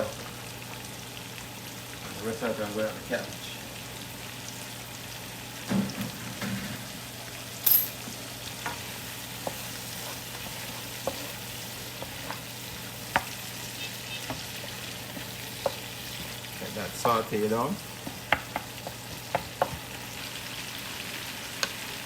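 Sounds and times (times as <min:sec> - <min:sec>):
stir fry sizzling in a pan: 0:00.0 - 0:22.0
utensil scraping a pan: 0:08.6 - 0:19.9.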